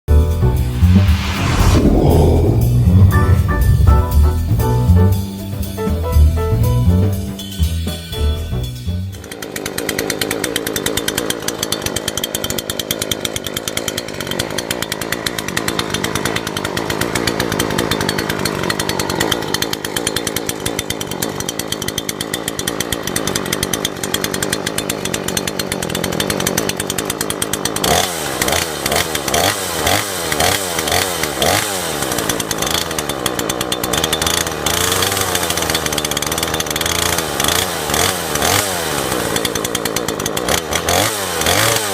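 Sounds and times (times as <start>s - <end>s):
chainsaw engine running: 9.2s - 41.9s.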